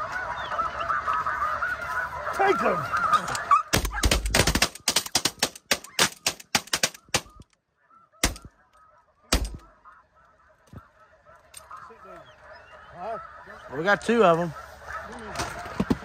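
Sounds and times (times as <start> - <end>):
geese honking: 0.0 - 16.0
shotgun blasts: 8.2 - 8.5.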